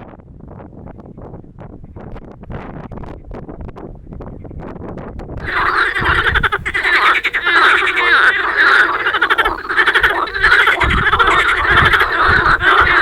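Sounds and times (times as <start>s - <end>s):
frogs croaking in chorus: 5.4s - 13.0s.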